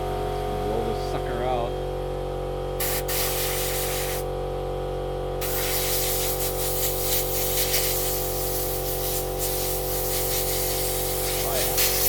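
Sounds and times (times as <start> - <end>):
steady hum: 0.0 - 4.3, 5.4 - 12.0
compressed air gun hissing: 2.8 - 4.3, 5.4 - 12.0.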